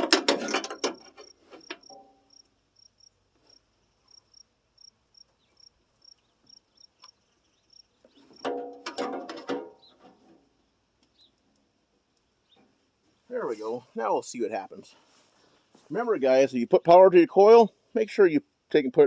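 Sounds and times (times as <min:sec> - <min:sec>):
metallic clicking and clanking: 0:00.0 - 0:02.2
cricket chirping: 0:00.5 - 0:08.6.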